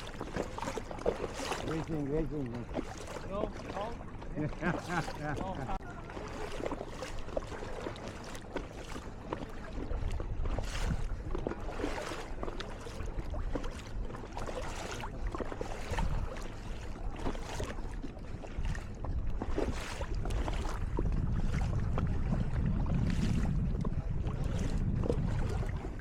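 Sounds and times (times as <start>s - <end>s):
small water splashes: 0.0s - 26.0s
wind buffeting microphone: 9.8s - 11.6s, 15.8s - 16.5s, 18.5s - 26.0s
low rumble: 18.6s - 26.0s.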